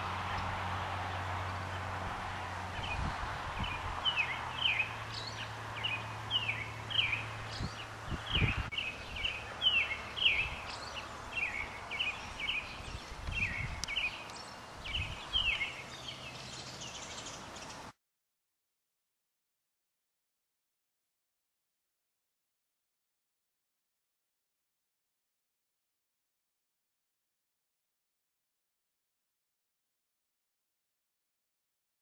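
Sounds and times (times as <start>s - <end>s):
steady outdoor hiss: 0.0s - 18.0s.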